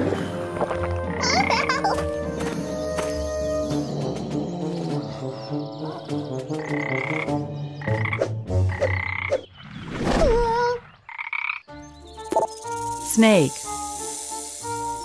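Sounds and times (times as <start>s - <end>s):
frog croaking: 6.6s - 9.4s, 11.1s - 11.7s.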